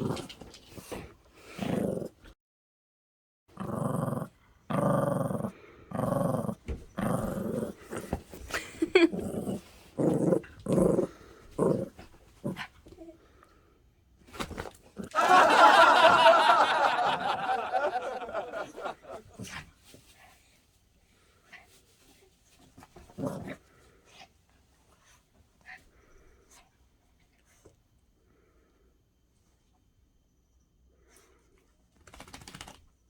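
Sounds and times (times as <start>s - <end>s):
dog growling: 1.5s - 2.2s, 3.6s - 12.7s, 15.0s - 19.5s.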